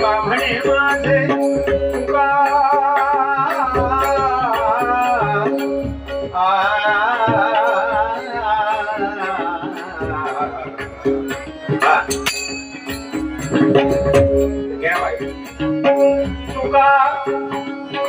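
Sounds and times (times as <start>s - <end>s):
steady held tones: 0.0s - 18.0s
drum strokes: 9.0s - 17.6s.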